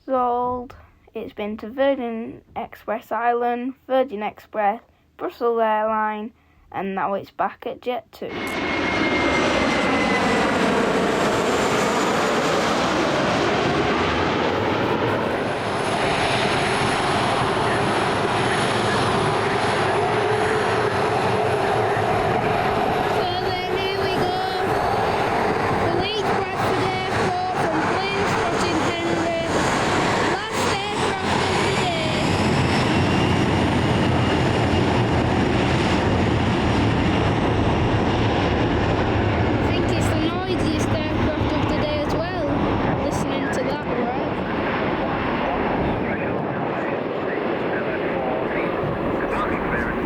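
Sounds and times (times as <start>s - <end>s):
jet engines running: 8.3s - 50.0s
faint high whine: 45.5s - 50.0s.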